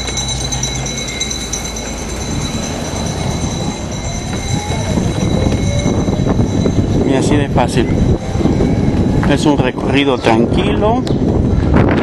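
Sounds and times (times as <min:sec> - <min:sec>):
road rumble: 0:00.0 - 0:12.0
wind rushing over microphone: 0:00.0 - 0:12.0.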